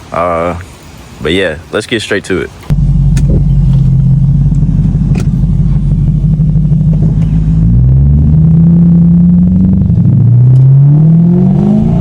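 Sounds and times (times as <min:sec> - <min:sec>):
car engine accelerating: 0:02.7 - 0:12.0.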